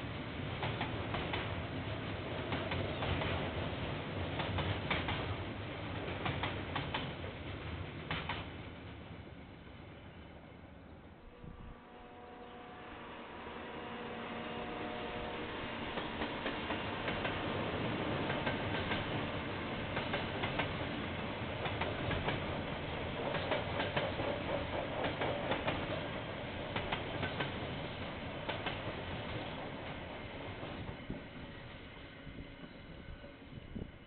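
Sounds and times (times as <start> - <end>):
freight train wheels rumbling: 0.0 - 10.4, 12.5 - 34.0
wheels clicking over rail joints: 21.6 - 30.0.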